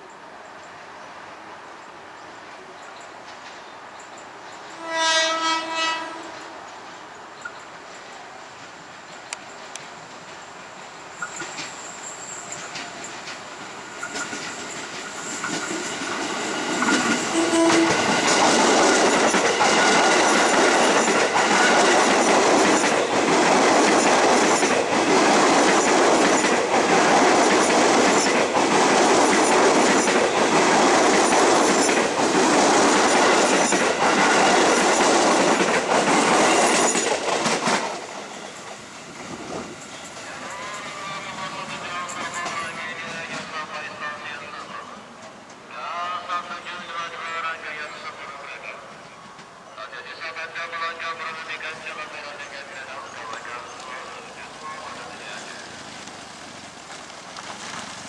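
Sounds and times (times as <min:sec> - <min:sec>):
electric train passing: 0:00.2 - 0:58.0
wheels clacking over rail joints: 0:08.9 - 0:43.5, 0:53.2 - 0:58.0.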